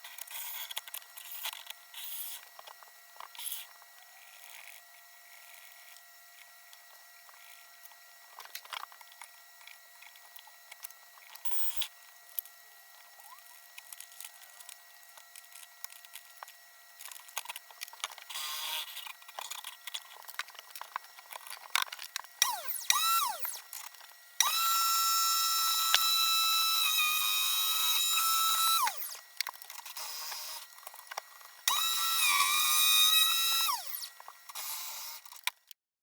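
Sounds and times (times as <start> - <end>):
table saw motor whining: 17.4 - 35.5.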